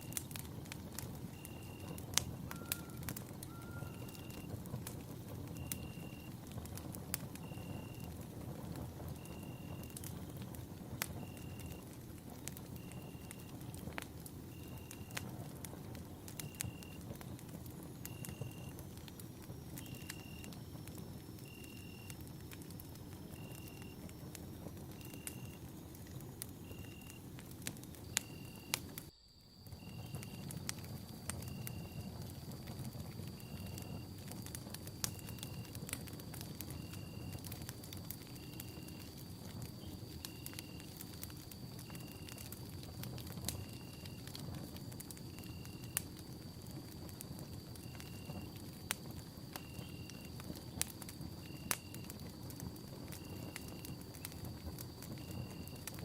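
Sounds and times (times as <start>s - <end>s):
campfire crackling: 0.0s - 56.0s
faint steady high tone: 1.2s - 4.6s
faint high chirp: 1.3s - 4.5s.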